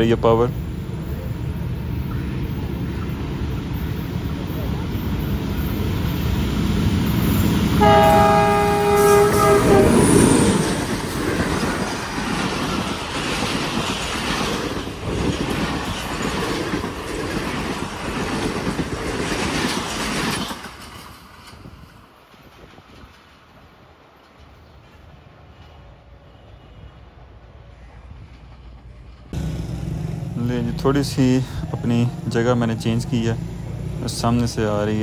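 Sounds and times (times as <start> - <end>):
locomotive passing at speed: 0.0 - 23.5, 27.8 - 35.0
wheels clacking over rail joints: 2.3 - 23.5
multi-tone train horn blast: 7.8 - 10.8, 25.5 - 27.1.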